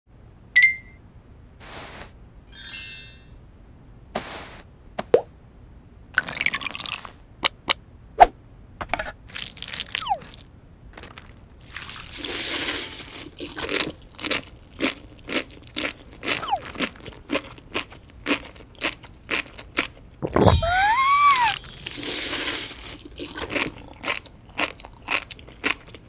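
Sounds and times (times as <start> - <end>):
crisp popping chewing: 13.1 - 20.4, 22.6 - 26.0.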